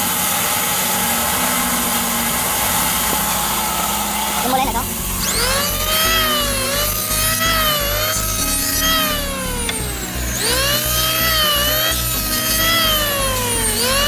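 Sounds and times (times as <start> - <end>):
sheet sander whining: 0.0 - 14.0.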